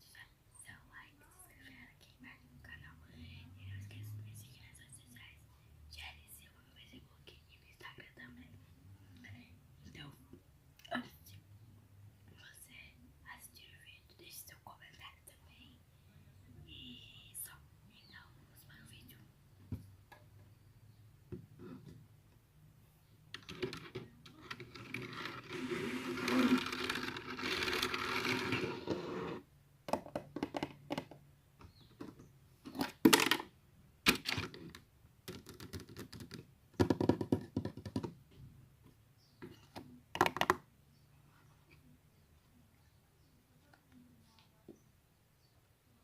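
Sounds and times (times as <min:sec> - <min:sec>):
continuous scraping noise: 0:23.4 - 0:29.5.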